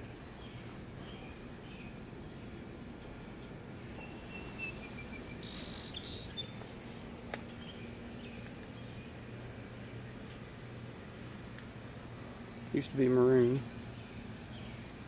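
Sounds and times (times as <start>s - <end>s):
bird chirping: 0.0s - 3.0s, 3.8s - 10.4s, 13.8s - 14.9s
outdoor background noise: 0.0s - 15.0s.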